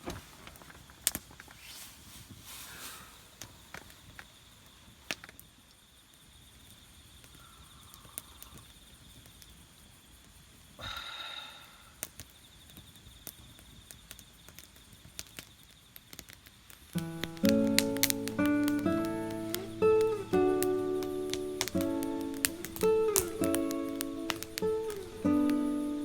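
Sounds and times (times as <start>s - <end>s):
high insect trill: 1.7s - 26.0s
campfire crackling: 11.9s - 26.0s.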